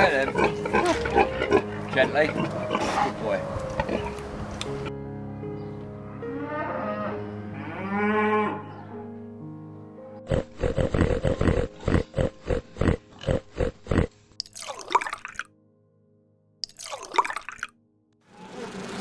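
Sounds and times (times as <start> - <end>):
cow mooing: 0.4 - 3.0, 6.3 - 8.9.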